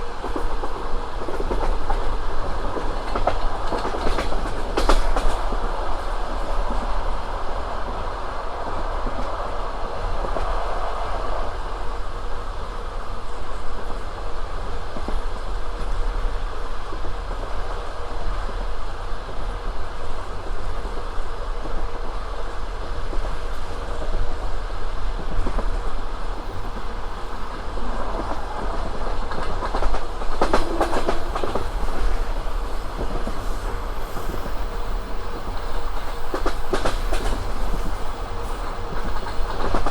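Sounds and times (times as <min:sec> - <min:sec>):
train rumbling: 0:00.0 - 0:39.9
wheels clacking over rail joints: 0:26.3 - 0:39.9.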